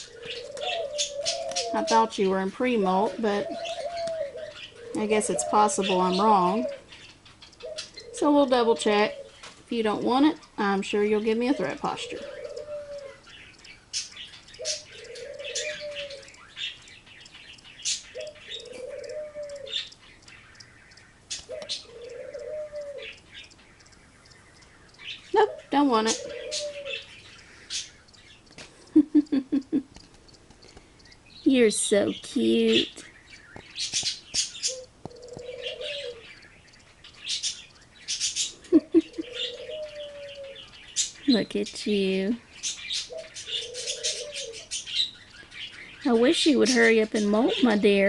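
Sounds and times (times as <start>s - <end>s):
bird cooing: 0.0s - 6.9s, 7.6s - 9.4s, 11.1s - 13.4s, 14.5s - 16.6s, 18.1s - 20.0s, 21.4s - 23.2s, 25.3s - 27.9s, 34.6s - 36.6s, 37.4s - 40.8s, 43.0s - 44.8s
faint high chirps and clicks: 0.0s - 47.9s.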